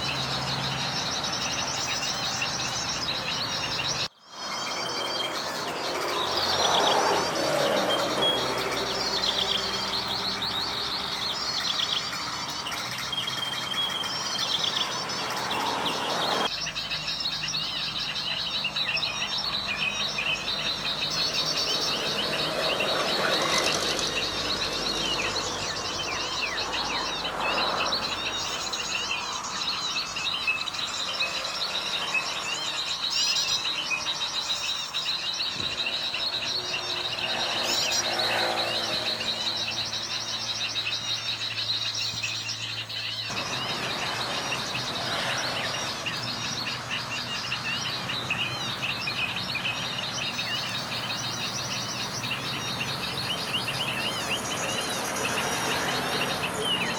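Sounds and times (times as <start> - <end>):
small birds chirping: 0.0 - 56.9
sweeping bird calls: 0.0 - 56.9.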